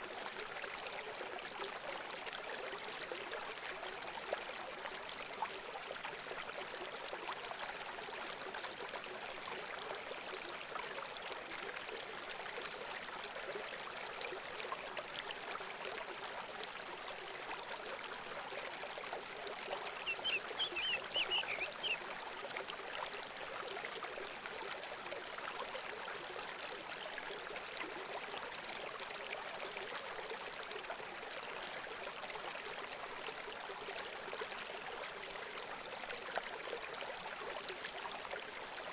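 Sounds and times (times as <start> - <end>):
running water: 0.0 - 38.9
bird chirping: 20.0 - 22.0.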